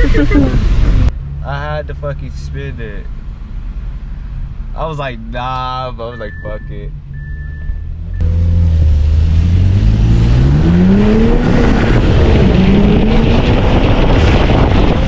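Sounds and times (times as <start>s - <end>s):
car engine accelerating: 6.3s - 15.0s.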